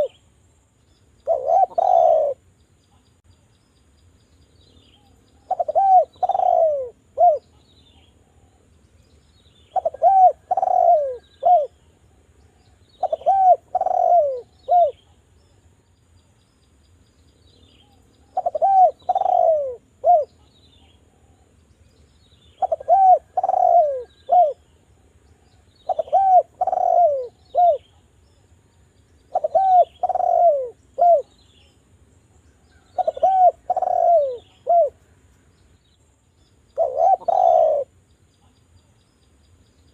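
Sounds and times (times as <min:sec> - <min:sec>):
faint small bird chirps: 0:00.0 - 0:39.9
dove cooing: 0:01.2 - 0:02.4, 0:05.4 - 0:07.5, 0:09.7 - 0:11.8, 0:13.0 - 0:15.1, 0:18.2 - 0:21.4, 0:22.6 - 0:24.7, 0:25.4 - 0:28.1, 0:29.3 - 0:31.4, 0:32.8 - 0:35.0, 0:36.8 - 0:38.0.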